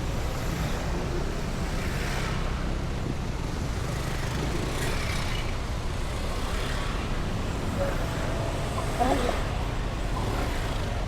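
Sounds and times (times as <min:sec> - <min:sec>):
heavy road traffic: 0:00.0 - 0:11.0.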